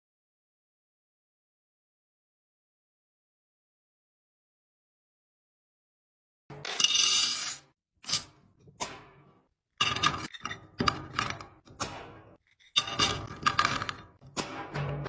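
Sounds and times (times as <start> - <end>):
kitchen items clinking and clattering: 6.5 - 15.0.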